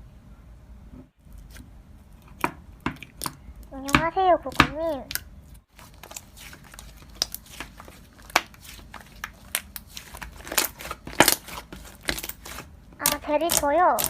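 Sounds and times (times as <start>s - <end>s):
hands squeezing slime: 4.5s - 14.0s.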